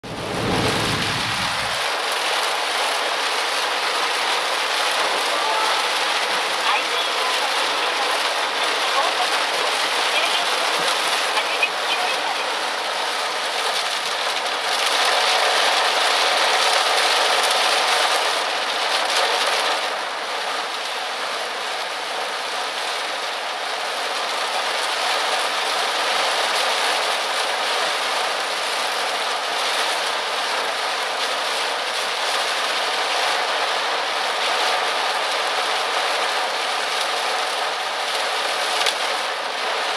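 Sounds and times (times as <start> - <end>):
road noise: 0.0 - 2.0
heavy rain on a car: 0.0 - 39.9.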